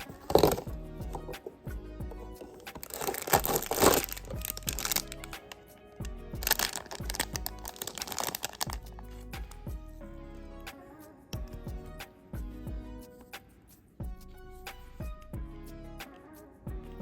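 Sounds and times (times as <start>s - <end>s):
background music: 0.0s - 17.0s
packaging crinkling: 0.2s - 0.7s, 2.4s - 5.5s, 6.4s - 8.8s.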